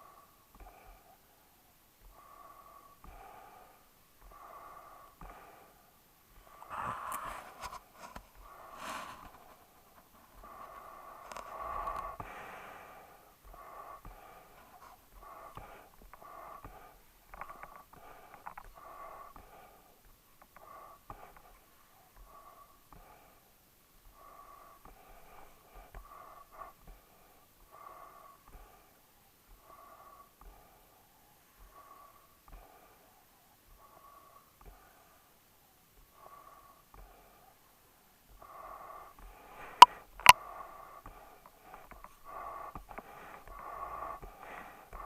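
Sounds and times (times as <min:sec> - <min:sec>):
dog breathing noisily: 0:38.3 - 0:45.0.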